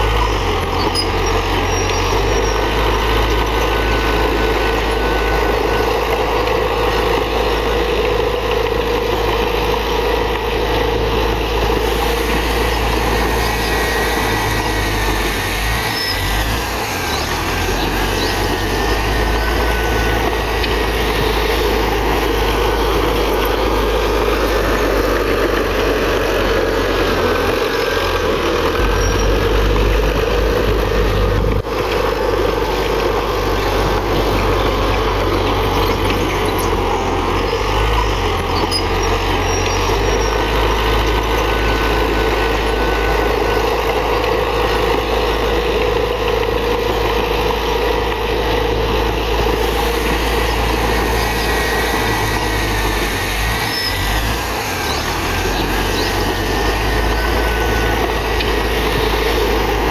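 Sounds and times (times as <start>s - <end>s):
faint high squeals: 0.0s - 6.8s, 11.6s - 26.4s, 28.8s - 30.5s, 33.8s - 44.5s, 49.6s - 59.9s
bulldozer diesel engine running: 0.0s - 59.9s.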